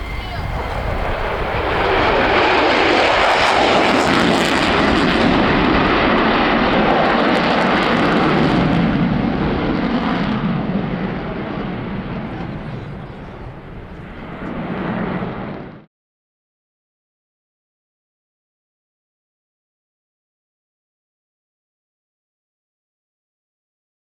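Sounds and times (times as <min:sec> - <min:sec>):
jet engines roaring past: 0:00.0 - 0:15.9.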